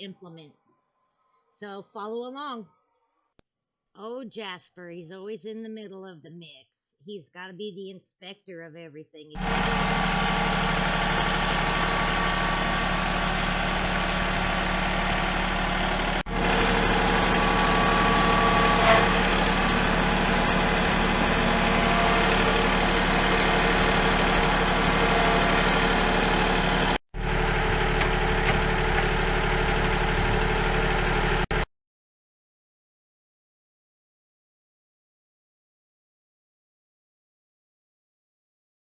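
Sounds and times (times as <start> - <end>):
tractor diesel engine running: 9.4 - 31.6.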